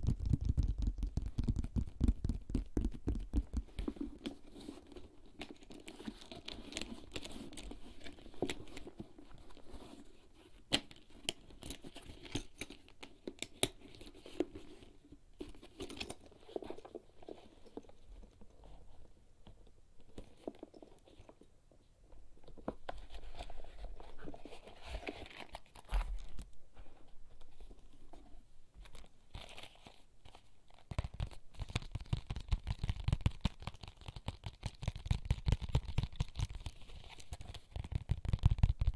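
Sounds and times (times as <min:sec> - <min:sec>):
objects rustling and crinkling: 0:03.4 - 0:31.8.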